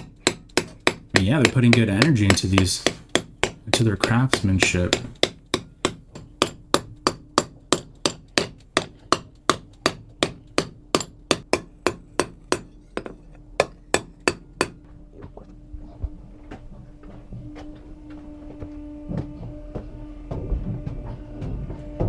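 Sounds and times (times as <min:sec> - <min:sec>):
hammer striking steel: 0:00.0 - 0:14.9.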